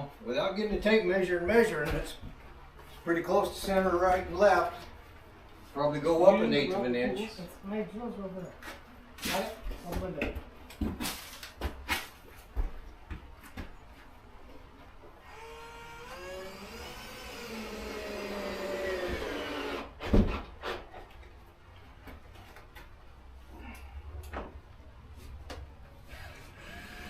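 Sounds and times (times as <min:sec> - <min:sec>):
cordless drill motor whine: 0:15.2 - 0:19.9, 0:26.1 - 0:27.0.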